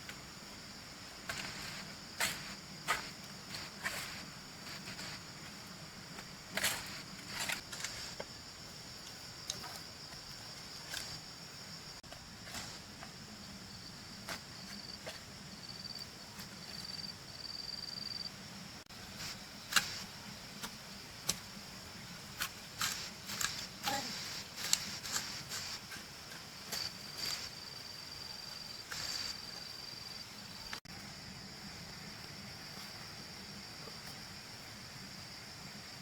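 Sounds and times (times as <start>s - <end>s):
insects trilling: 0.0s - 36.0s
digging tool striking earth: 1.3s - 5.2s, 6.2s - 8.3s, 19.2s - 21.5s, 22.4s - 27.6s.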